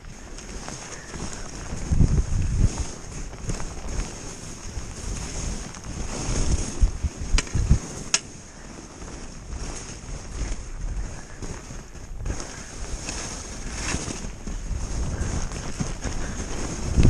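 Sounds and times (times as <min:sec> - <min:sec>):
skis hissing over snow: 0:00.0 - 0:17.0
wind buffeting microphone: 0:00.0 - 0:17.0.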